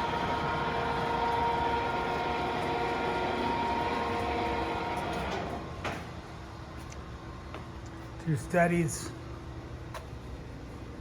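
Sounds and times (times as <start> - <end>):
lathe running with whine: 0.0 - 5.6.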